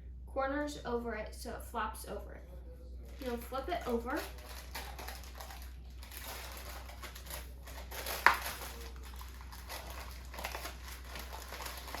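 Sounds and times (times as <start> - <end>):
wax paper rustling and crinkling: 3.0 - 12.0.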